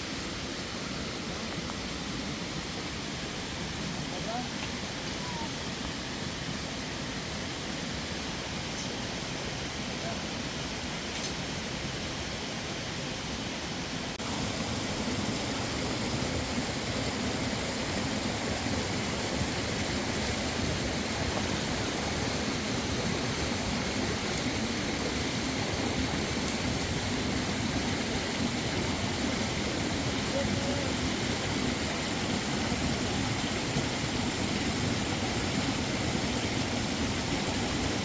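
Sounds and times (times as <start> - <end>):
running water rushing: 0.0 - 38.0.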